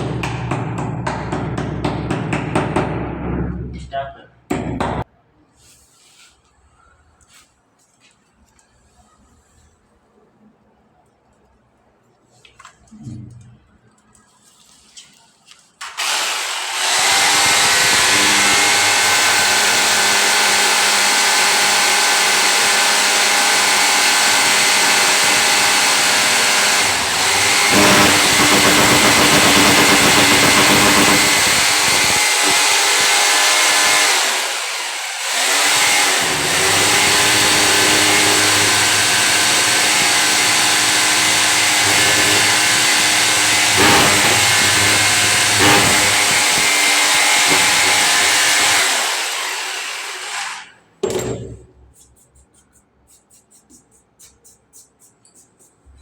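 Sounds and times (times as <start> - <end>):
electric power tool motor running: 16.0 - 50.6.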